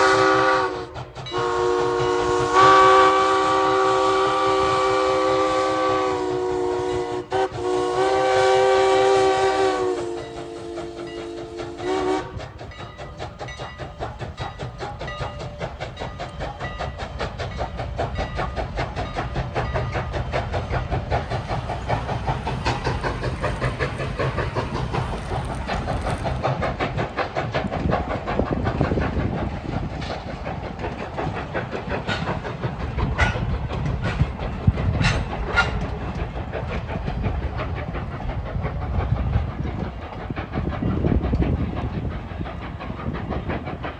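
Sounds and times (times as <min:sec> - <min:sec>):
steam locomotive whistle chord: 0:00.0 - 0:12.4
train rumbling with clicking wheels: 0:00.0 - 0:43.9.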